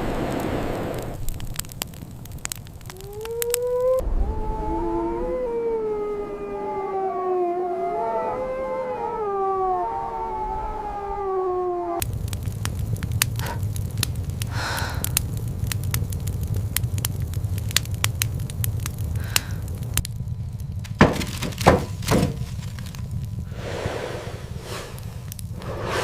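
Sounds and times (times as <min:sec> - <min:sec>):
fire crackling and popping: 0:00.0 - 0:04.0, 0:12.0 - 0:26.0
low rumble: 0:00.0 - 0:07.4, 0:09.3 - 0:26.0
whoosh: 0:04.0 - 0:05.9, 0:23.5 - 0:26.0
heavy knocks or cracks: 0:20.8 - 0:23.0.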